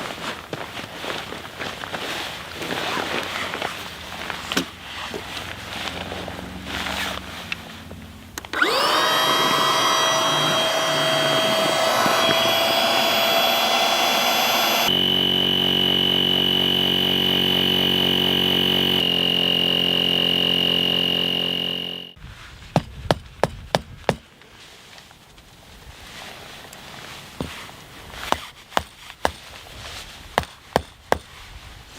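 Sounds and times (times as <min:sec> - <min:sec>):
small electric motor whining: 0:08.4 - 0:22.2.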